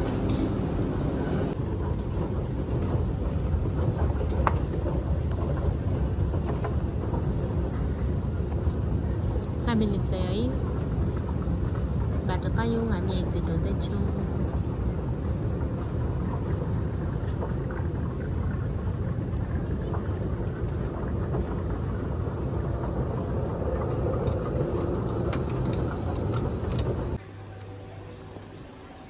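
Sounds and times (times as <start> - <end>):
loud steady rumbling: 0.0 - 2.1.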